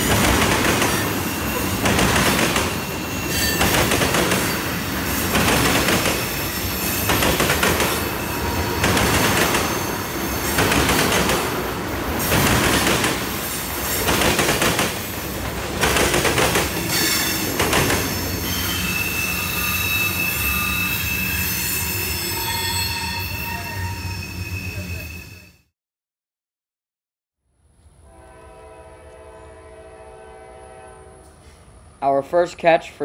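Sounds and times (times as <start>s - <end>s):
railroad car wheels rolling: 0.0s - 25.4s
faint wheel squeals: 18.4s - 25.6s.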